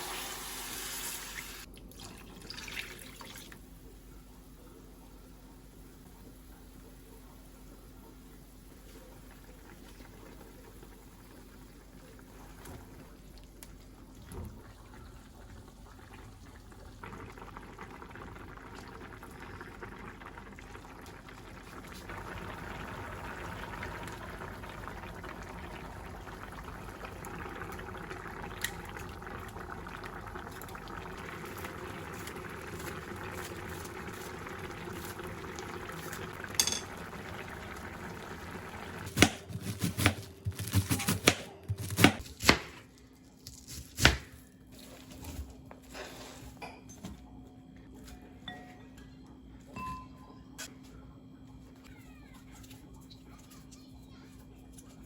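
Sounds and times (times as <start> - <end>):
pot of liquid boiling: 5.5 - 41.2
knife chopping on cutting board: 39.1 - 42.8.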